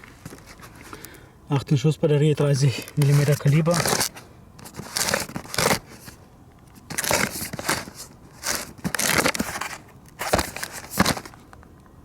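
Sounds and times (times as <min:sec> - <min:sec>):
crunching rustling bursts: 0:02.4 - 0:11.6.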